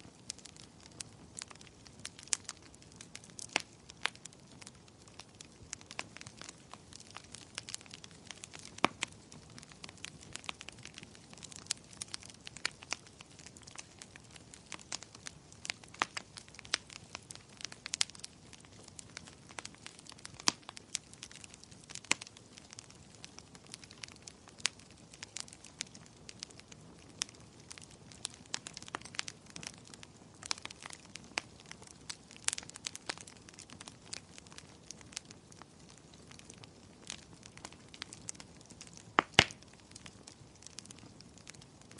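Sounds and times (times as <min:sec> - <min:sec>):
wood fire crackling and popping: 0:00.0 - 0:41.9.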